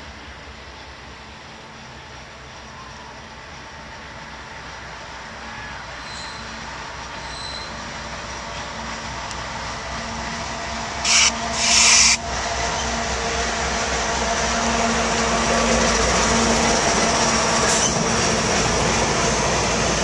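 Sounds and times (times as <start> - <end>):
diesel locomotive passing: 0.0 - 20.0
wheels rumbling on rail: 0.0 - 20.0
loud hiss bursts: 11.0 - 12.2.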